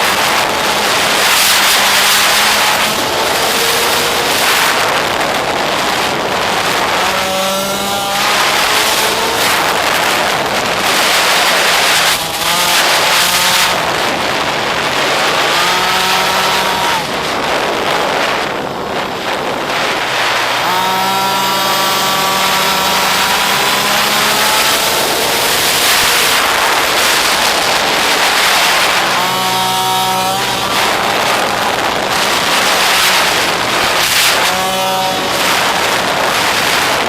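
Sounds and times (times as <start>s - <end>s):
small motorbike engine revving: 0.0s - 37.0s
wind rush: 0.0s - 37.0s.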